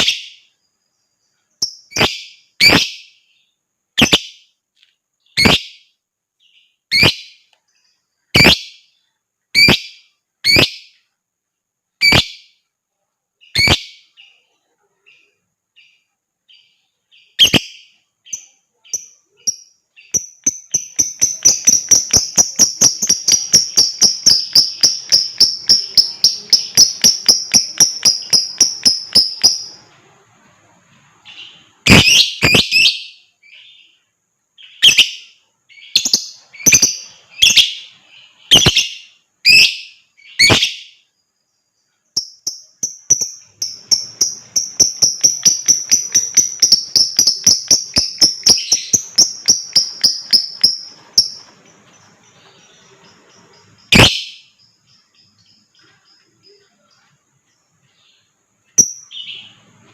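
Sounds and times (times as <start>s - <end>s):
harsh bird chirps: 0.0s - 4.6s, 5.2s - 11.2s, 11.9s - 12.7s, 13.3s - 59.9s
lovebird chattering trill: 1.6s - 3.2s, 4.0s - 4.4s, 5.3s - 5.9s, 6.9s - 7.4s, 8.3s - 8.9s, 9.6s - 11.0s, 12.0s - 12.5s, 13.4s - 14.4s, 16.5s - 29.9s, 31.3s - 33.9s, 34.6s - 41.0s, 42.2s - 51.6s, 52.2s - 56.9s, 58.7s - 59.6s.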